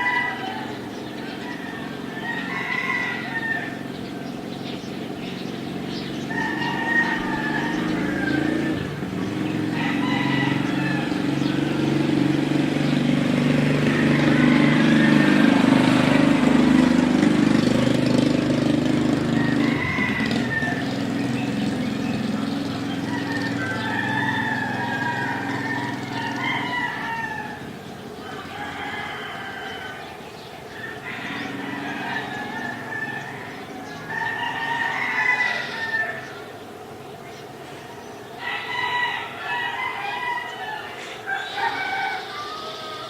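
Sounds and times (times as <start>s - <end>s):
roosters crowing: 0.0s - 43.0s
vehicle driving past: 0.0s - 43.0s.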